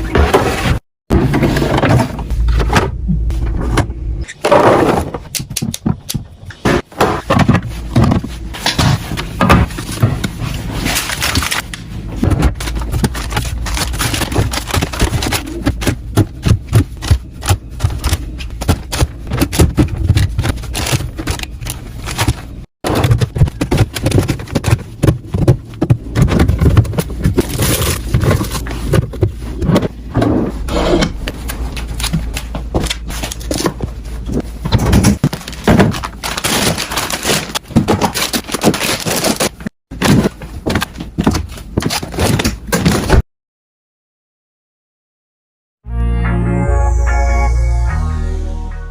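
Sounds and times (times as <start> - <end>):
plastic containers clicking and crinkling: 7.2 - 30.0, 31.3 - 43.2.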